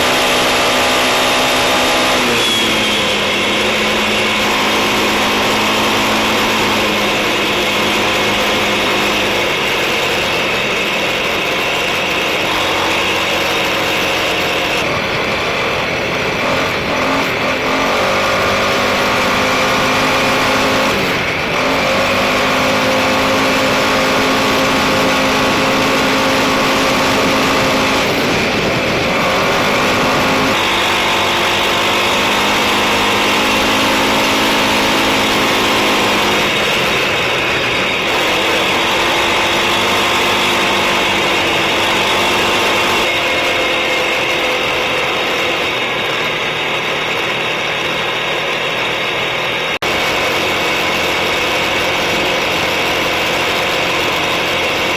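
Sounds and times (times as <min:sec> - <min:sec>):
atv engine running: 0:00.0 - 0:54.9.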